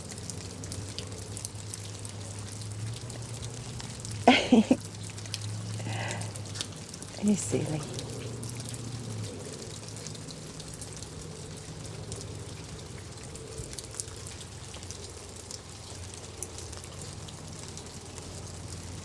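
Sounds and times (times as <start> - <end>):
low steady hum: 0.0 - 19.0
rain pattering and dripping: 0.0 - 19.0.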